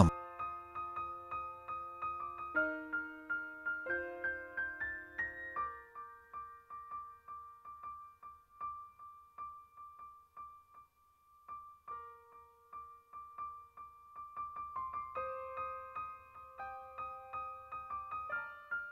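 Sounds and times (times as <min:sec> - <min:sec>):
soft piano music: 0:00.0 - 0:18.9.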